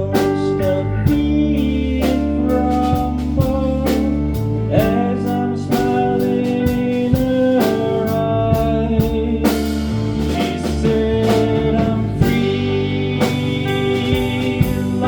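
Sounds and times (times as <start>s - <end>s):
drum kit beat: 0.0s - 15.0s
rock band playing: 0.0s - 15.0s.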